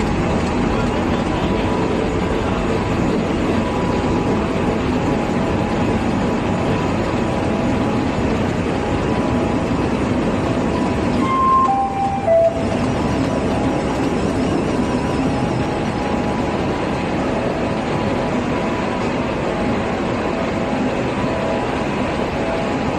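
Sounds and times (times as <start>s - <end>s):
production machinery running: 0.0s - 22.9s
short descending beeps: 11.2s - 12.8s.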